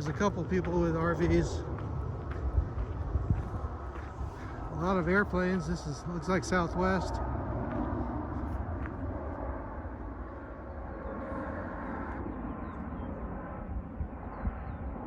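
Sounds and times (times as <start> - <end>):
jet airliner passing overhead: 0.0 - 15.0.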